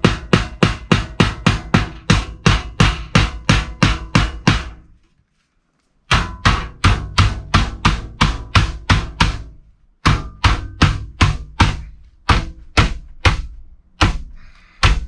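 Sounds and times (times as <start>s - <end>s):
hammer driving nails into wood: 0.0s - 4.8s.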